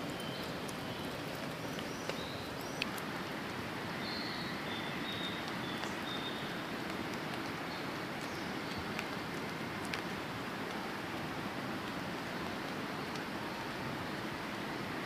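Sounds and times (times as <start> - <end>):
bird chirping: 0.0 - 3.0, 4.0 - 6.6
steady outdoor hiss: 0.0 - 15.0.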